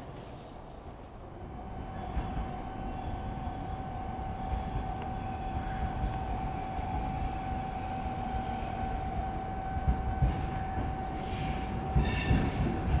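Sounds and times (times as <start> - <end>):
train low rumble: 0.0 - 13.0
train wheel squeal: 1.4 - 13.0.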